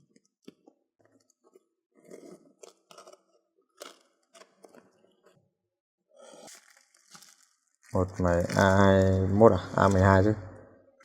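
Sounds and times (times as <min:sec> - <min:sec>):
packaging crinkling and rustling: 0:06.2 - 0:10.4.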